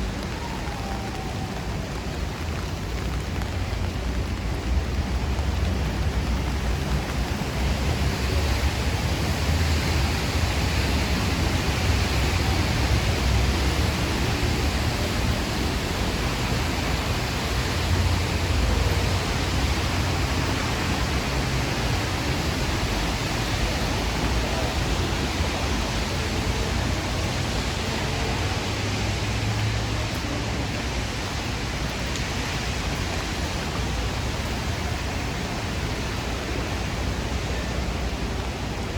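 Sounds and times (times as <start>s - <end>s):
heavy rain hissing: 0.0s - 38.9s.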